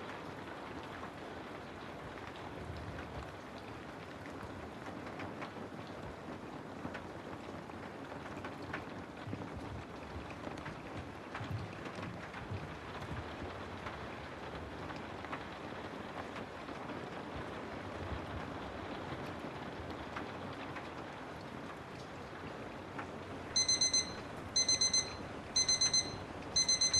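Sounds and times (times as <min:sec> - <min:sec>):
steady rain: 0:00.0 - 0:26.9
digital timer alarm beeping: 0:23.6 - 0:26.9.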